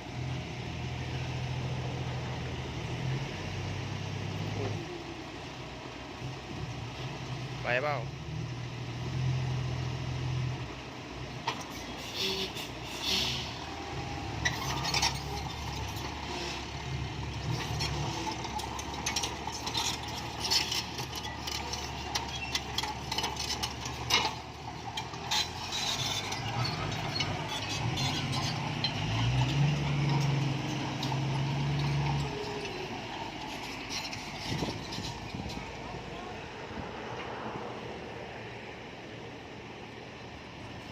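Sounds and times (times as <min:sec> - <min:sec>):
diesel engine rumble: 0:00.0 - 0:40.9
clanks and rattles: 0:14.4 - 0:35.8.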